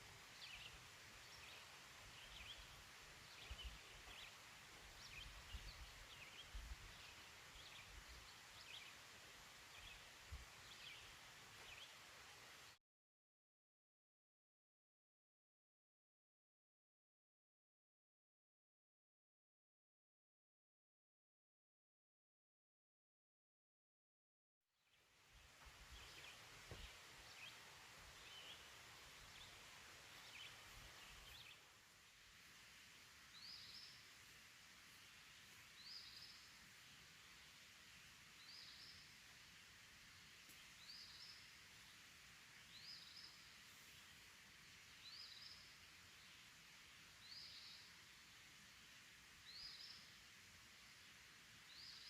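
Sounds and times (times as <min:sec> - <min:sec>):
soft hiss: 0:00.0 - 0:12.8, 0:24.8 - 0:52.0.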